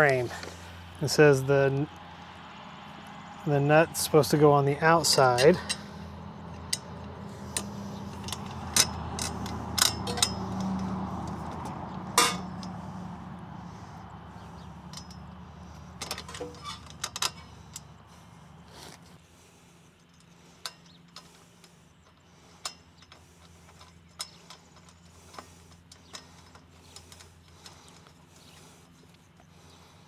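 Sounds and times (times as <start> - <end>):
metal bolt hardware clicking: 5.0 - 12.8.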